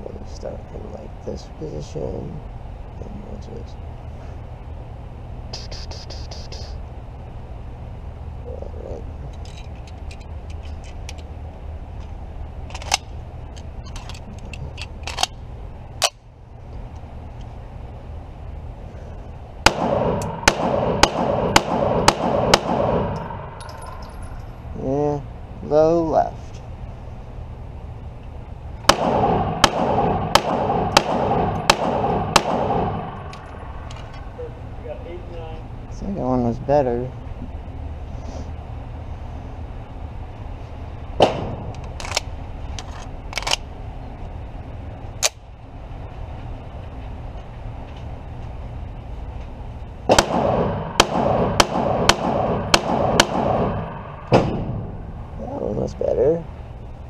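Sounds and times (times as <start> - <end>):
steady low hum: 0.0 - 57.0
rapid pistol shots: 19.6 - 24.2, 28.9 - 34.1, 41.2 - 41.8, 50.1 - 55.2.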